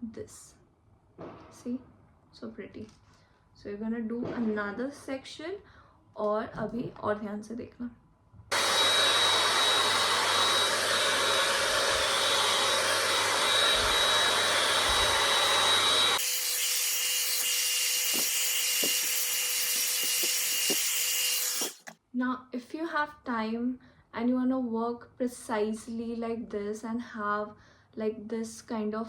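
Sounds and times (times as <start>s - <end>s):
hot air brush dryer blowing: 8.5s - 21.9s
motor whine: 8.5s - 21.9s.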